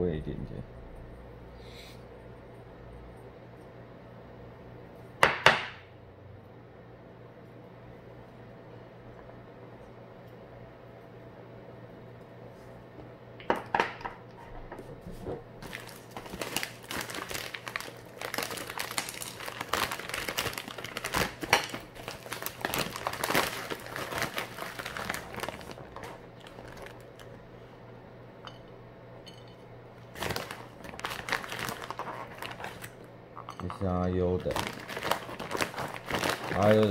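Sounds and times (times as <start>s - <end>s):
packaging crinkling and rustling: 15.6s - 27.4s, 30.1s - 33.1s, 33.8s - 36.9s.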